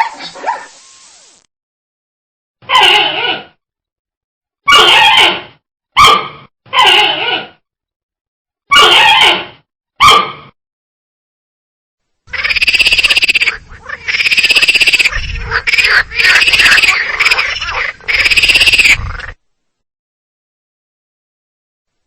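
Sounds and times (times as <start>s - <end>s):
frog croaking: 12.3s - 19.4s.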